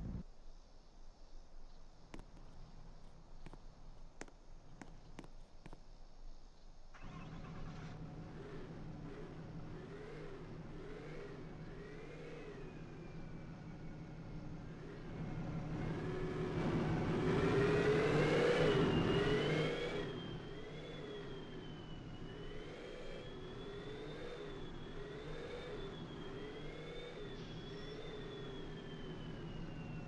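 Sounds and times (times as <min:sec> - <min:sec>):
vehicle engine running: 0:00.0 - 0:00.2, 0:07.0 - 0:30.0.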